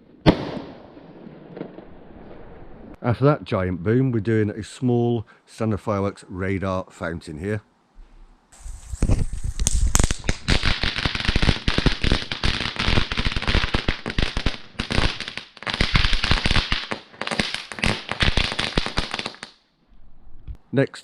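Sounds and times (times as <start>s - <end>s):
fireworks fountain crackling: 8.6s - 19.5s.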